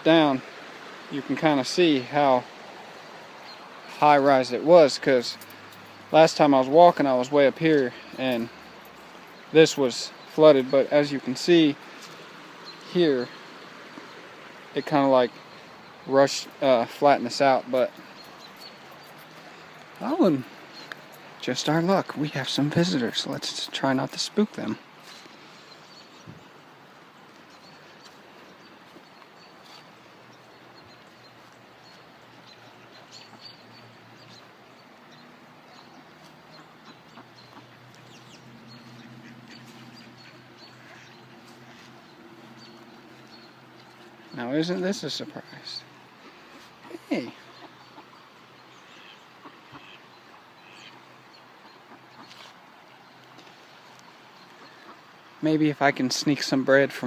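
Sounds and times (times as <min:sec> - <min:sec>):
creek water running over rocks: 0:00.0 - 0:57.0
faint bird calls: 0:24.5 - 0:55.4.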